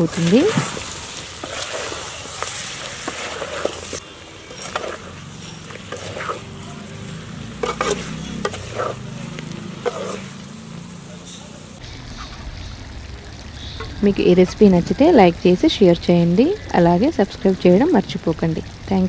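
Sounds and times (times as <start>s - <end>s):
steel ladle scraping a pan: 0.0s - 12.4s
chicken sizzling in a metal pan: 0.0s - 19.0s.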